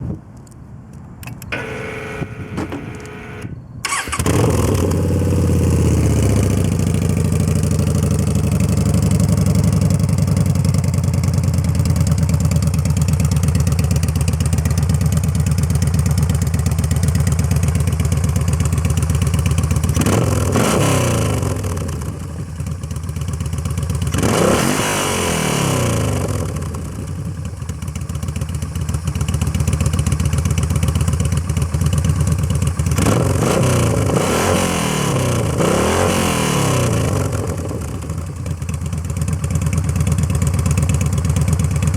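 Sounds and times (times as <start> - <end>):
motorcycle starter cranking: 1.2 - 5.0
motorcycle throttle blips: 1.2 - 6.1
motorcycle engine idling: 1.5 - 20.6, 21.5 - 24.2, 26.1 - 33.0, 37.1 - 41.9.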